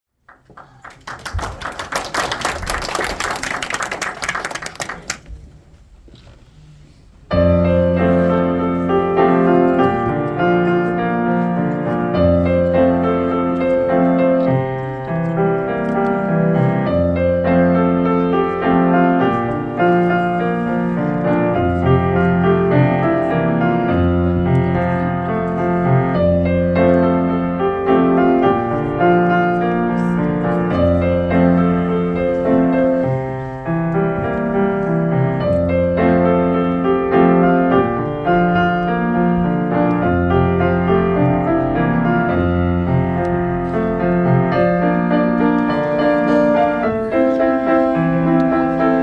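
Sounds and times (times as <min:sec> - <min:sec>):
audience clapping: 0:00.2 - 0:05.5.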